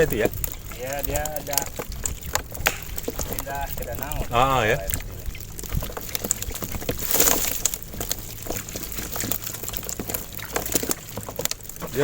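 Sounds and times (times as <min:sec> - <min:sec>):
small knocks: 0:00.0 - 0:03.5
low steady hum: 0:00.0 - 0:12.0
water splashing and dripping: 0:00.0 - 0:12.0.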